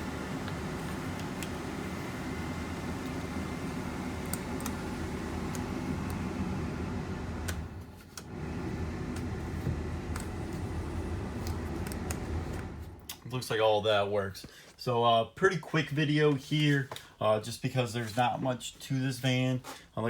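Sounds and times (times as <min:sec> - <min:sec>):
blower fan running: 0:00.0 - 0:14.1.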